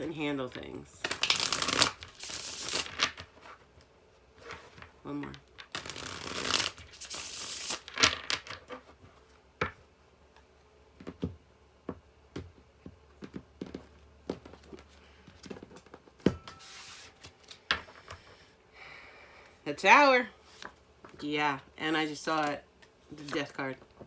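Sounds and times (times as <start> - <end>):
cards shuffling: 0.0 - 3.7, 4.4 - 8.9, 22.4 - 23.6
cards tapping and flicking: 1.0 - 3.3, 5.6 - 8.6.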